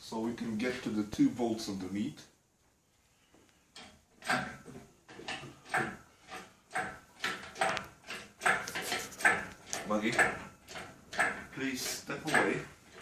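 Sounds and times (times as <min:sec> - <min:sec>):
hydraulic jack pumped by hand: 0:03.8 - 0:13.0.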